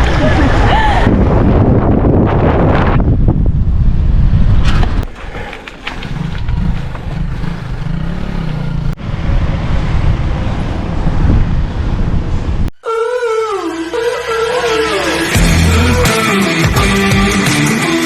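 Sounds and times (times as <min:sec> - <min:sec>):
wind buffeting microphone: 0:00.0 - 0:12.7
road vehicle noise: 0:00.0 - 0:18.0
engine note rising and falling: 0:05.0 - 0:12.7.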